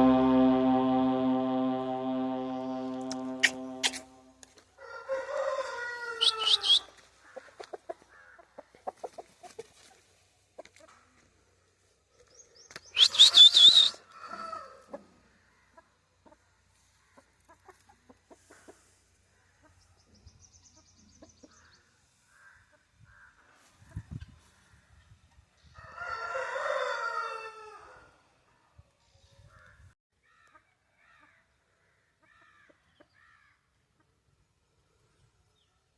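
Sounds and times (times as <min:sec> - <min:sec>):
rooster crowing: 0:04.8 - 0:06.8, 0:13.3 - 0:14.8, 0:25.8 - 0:28.1.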